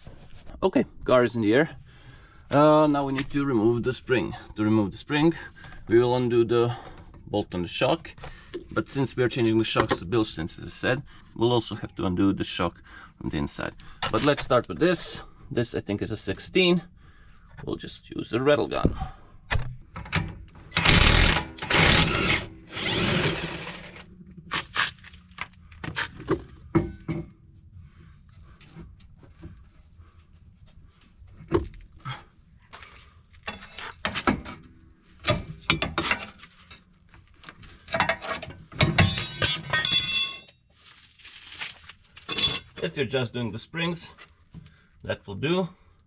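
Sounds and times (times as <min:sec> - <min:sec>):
metallic knocks and clinks of tools: 0:35.3 - 0:36.3, 0:38.8 - 0:40.7.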